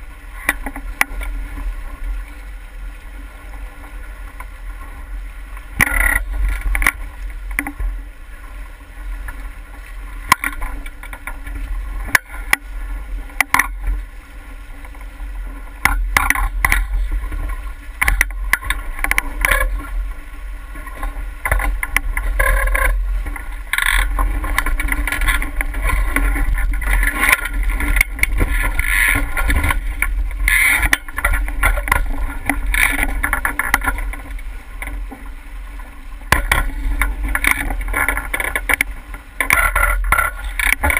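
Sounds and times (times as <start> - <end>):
water rushing along boat hull: 0.0 - 40.9
wind rumble on microphone: 0.0 - 40.9
sharp knocks and clicks: 5.8 - 7.8, 10.2 - 12.7, 13.4 - 14.0, 15.8 - 17.0, 18.0 - 19.8, 21.4 - 35.2, 36.3 - 40.9.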